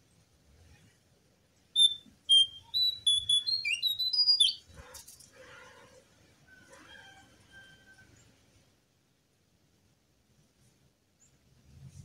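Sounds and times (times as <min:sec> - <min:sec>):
bird singing whistled notes: 0:01.8 - 0:04.7.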